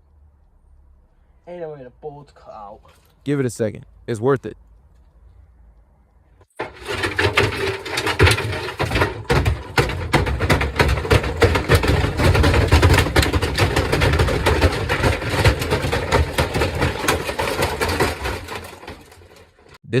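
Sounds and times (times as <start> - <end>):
bricks clattering in a drum: 6.6 - 19.8.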